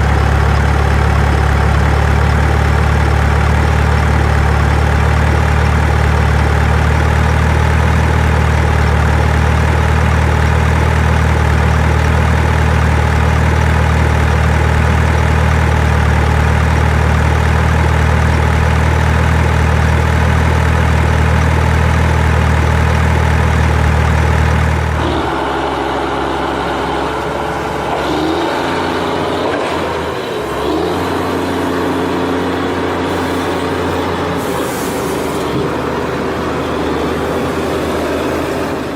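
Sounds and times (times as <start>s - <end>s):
heavy equipment engine idling: 0.0s - 38.9s.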